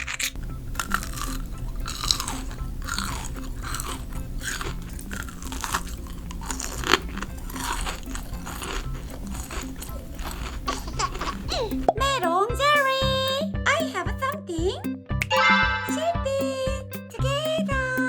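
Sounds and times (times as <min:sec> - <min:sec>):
candy crunching while chewed: 0:00.0 - 0:11.9.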